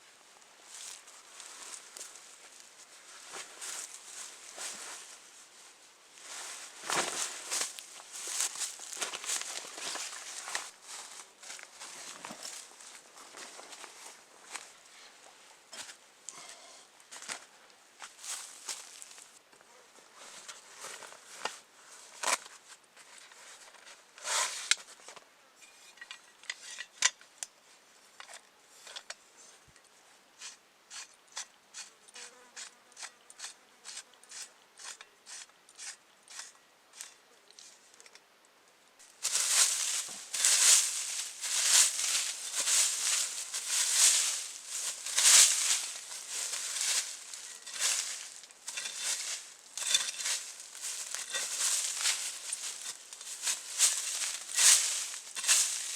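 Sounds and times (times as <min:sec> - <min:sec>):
crunching and rustling: 0:00.7 - 0:05.3, 0:06.2 - 0:14.7, 0:18.1 - 0:19.4, 0:39.0 - 0:55.9.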